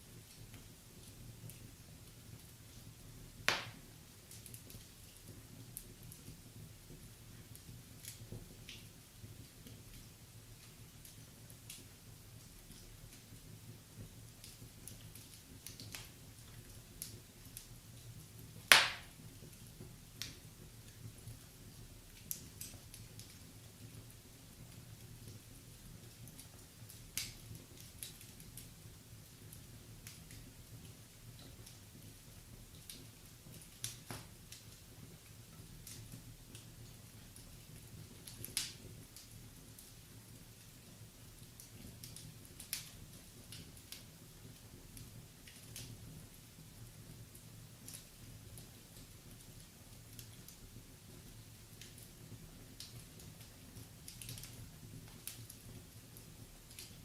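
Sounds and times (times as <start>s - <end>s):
wood fire crackling: 0.0s - 57.0s
loud pop from fire: 3.4s - 3.8s, 18.7s - 19.2s.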